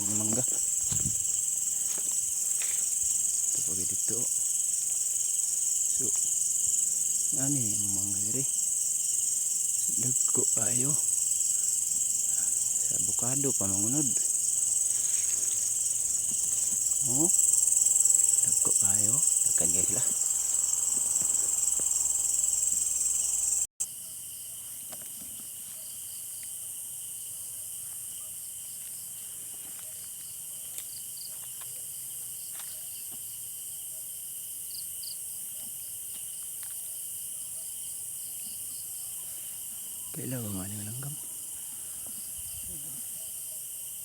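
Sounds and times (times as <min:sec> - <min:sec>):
faint pulsing insect calls: 0:00.0 - 0:24.5, 0:34.7 - 0:44.0
crickets trilling: 0:00.0 - 0:29.1, 0:29.8 - 0:44.0.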